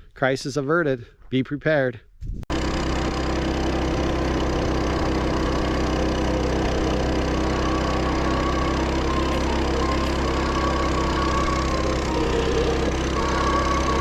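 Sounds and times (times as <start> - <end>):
small engine running: 2.5 - 14.0.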